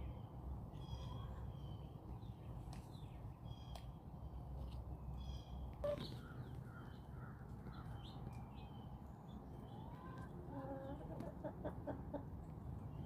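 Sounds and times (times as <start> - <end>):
hens clucking: 9.6 - 12.5.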